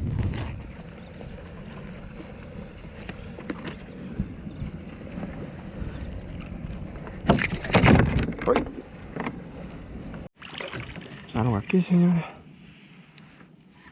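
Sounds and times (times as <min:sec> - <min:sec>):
wind on microphone: 0:00.0 - 0:10.2
water lapping against kayak hull: 0:00.0 - 0:11.4.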